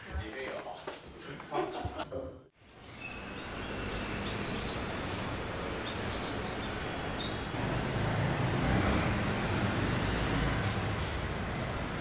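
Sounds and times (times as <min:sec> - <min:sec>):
outdoor background noise: 0:00.0 - 0:12.0
small birds chirping: 0:02.7 - 0:07.6.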